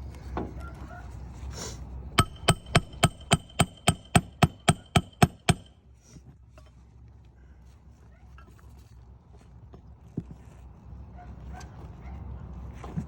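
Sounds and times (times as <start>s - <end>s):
hammer striking nail: 2.2s - 5.7s.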